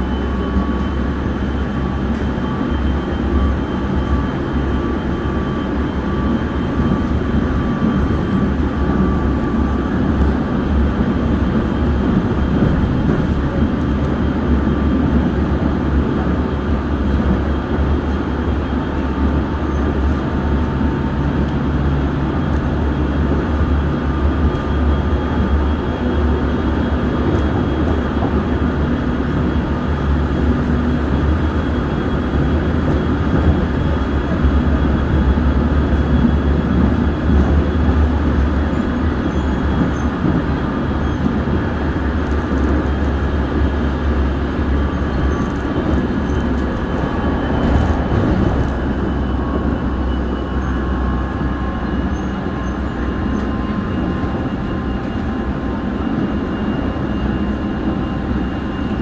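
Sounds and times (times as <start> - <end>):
wheels rumbling on rails: 0.0 - 59.0.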